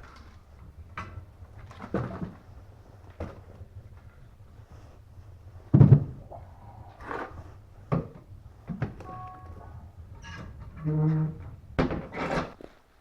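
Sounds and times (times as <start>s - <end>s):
knocks and thumps: 0.0s - 4.6s, 5.5s - 12.7s
faint steady tone: 8.8s - 11.5s.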